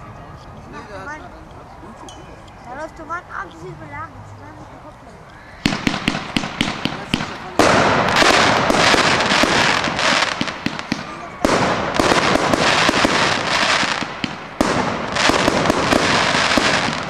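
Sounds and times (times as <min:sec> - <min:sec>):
fireworks crackling and popping: 0:04.9 - 0:17.0
loud fireworks volley: 0:05.4 - 0:17.0.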